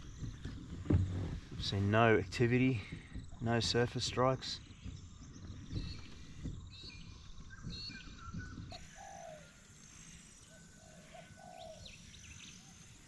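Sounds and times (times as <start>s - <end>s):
bird chirps: 4.5s - 13.0s
bird cooing calls: 8.2s - 12.9s.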